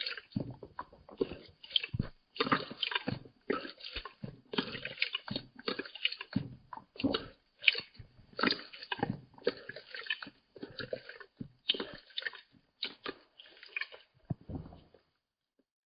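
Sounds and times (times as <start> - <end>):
cat lapping water: 0.0 - 15.0.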